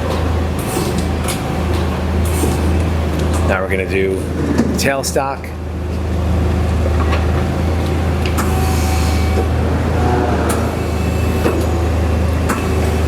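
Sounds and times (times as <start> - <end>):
machine low hum: 7.6 - 13.0.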